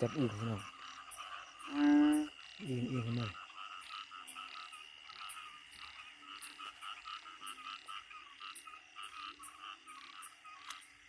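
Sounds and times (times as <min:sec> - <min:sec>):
chorus of frogs calling: 0:00.0 - 0:11.0
short low frog calls: 0:00.0 - 0:11.0.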